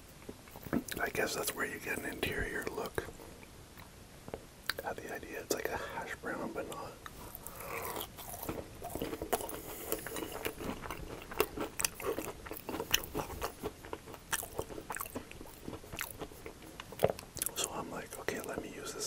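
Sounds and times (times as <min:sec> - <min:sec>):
person chewing crunchy food: 0:07.1 - 0:17.8.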